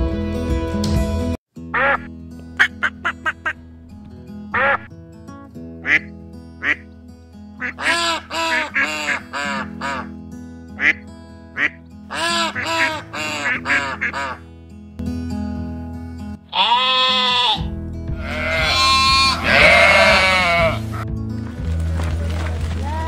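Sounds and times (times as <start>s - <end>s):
background music: 0.0s - 23.0s
ducks quacking: 1.8s - 3.6s, 4.6s - 4.9s, 5.8s - 6.8s, 7.6s - 10.2s, 10.8s - 11.0s, 11.6s - 14.4s, 16.5s - 21.0s.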